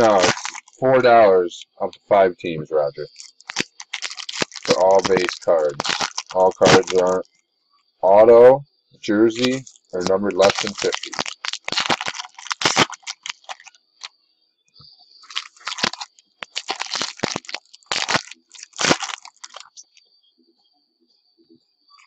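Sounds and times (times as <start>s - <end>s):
card pack wrappers crinkling and tearing: 0.0s - 0.8s, 3.0s - 7.2s, 9.4s - 13.7s, 15.2s - 19.8s.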